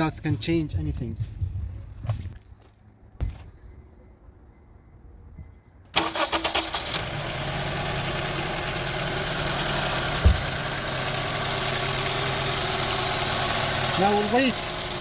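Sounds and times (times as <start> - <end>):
car engine starting and idling: 5.9 - 15.0
low thump: 10.2 - 10.6.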